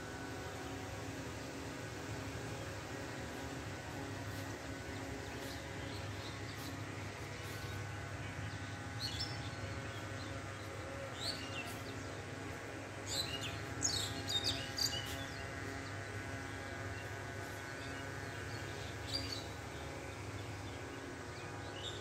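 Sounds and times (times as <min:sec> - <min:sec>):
small birds chirping: 0:08.4 - 0:16.1.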